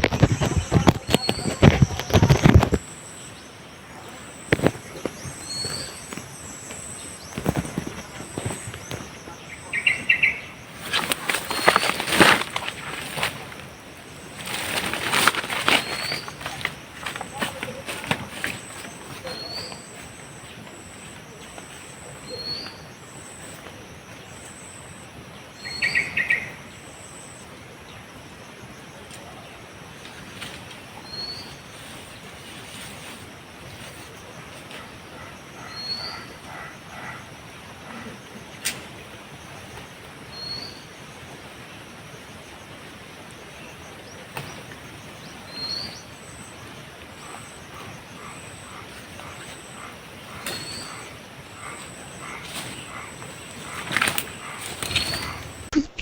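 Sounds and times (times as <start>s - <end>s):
bird chirping: 0.0s - 27.6s, 44.0s - 56.0s
insects buzzing: 0.0s - 55.8s
steady outdoor hiss: 0.0s - 56.0s.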